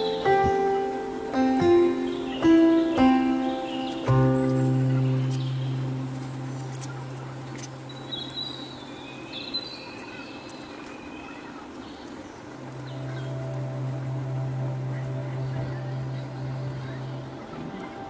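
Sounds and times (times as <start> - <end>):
background hiss: 0.0 - 18.0
faint bird chirps: 0.0 - 18.0.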